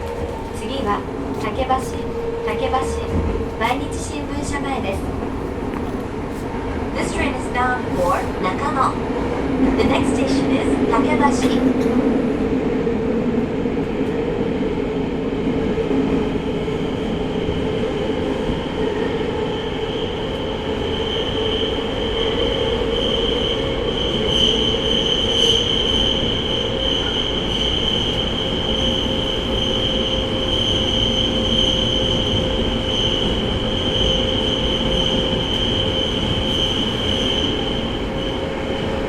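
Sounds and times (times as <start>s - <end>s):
wheels rumbling on rail: 0.0s - 39.0s.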